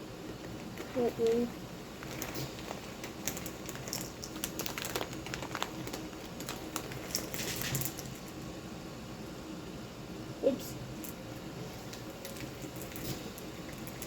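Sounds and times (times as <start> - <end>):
plastic bag crinkling: 0.3 - 8.4, 11.0 - 14.0.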